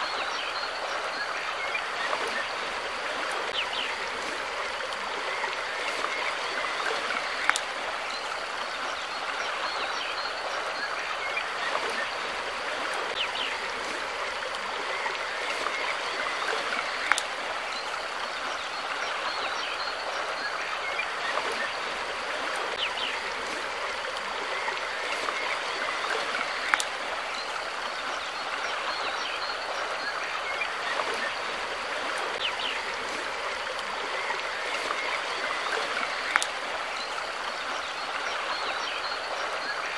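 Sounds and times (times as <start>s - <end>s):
stream water flowing: 0.0s - 39.9s
sharp splashing clicks: 5.9s - 7.8s, 16.4s - 17.4s, 25.1s - 27.0s, 34.7s - 36.6s.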